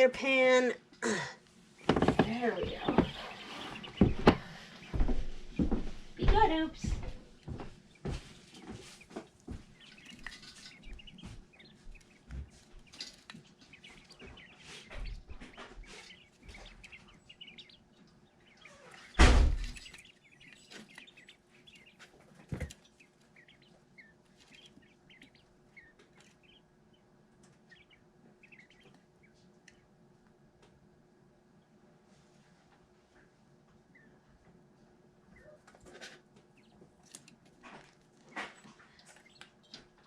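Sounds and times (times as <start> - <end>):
chicks cheeping: 1.6 - 30.8, 33.6 - 40.0
loud knock: 19.2 - 19.8.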